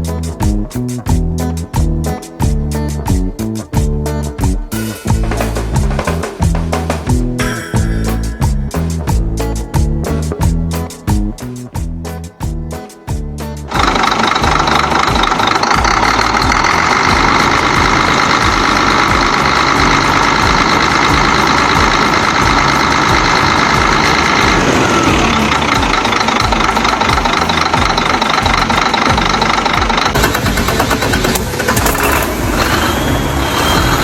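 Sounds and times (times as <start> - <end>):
diesel truck engine running: 13.6 - 34.0.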